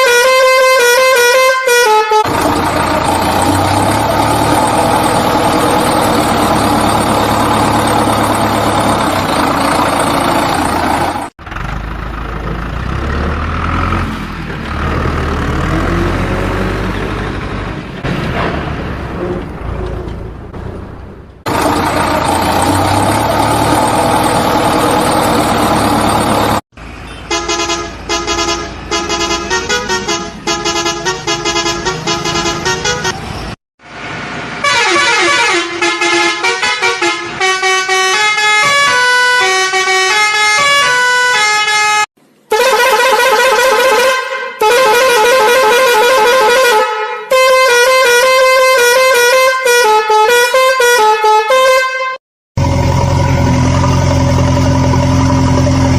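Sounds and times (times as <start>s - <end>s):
musical horn playing tunes: 0.0s - 2.3s, 27.3s - 33.2s, 34.6s - 52.2s
noisy horn blast: 0.0s - 2.5s, 27.2s - 33.2s, 34.6s - 52.2s.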